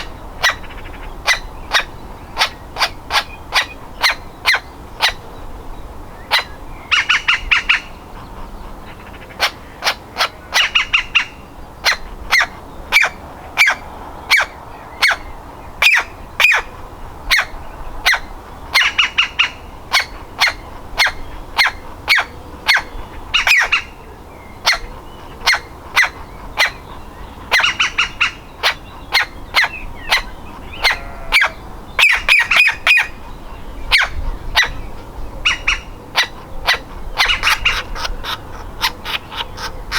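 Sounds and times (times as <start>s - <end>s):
woodpecker nestling calling: 24.6s - 39.9s.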